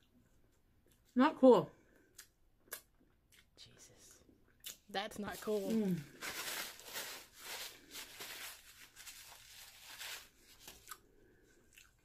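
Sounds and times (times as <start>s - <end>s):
person chewing food: 0.0s - 1.1s, 1.8s - 3.6s, 10.7s - 12.0s.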